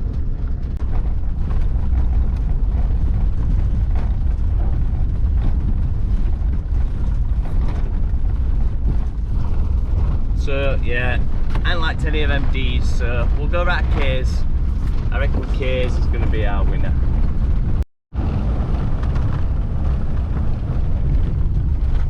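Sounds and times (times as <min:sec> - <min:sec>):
vehicle engine and tyres rumbling: 0:00.0 - 0:22.0.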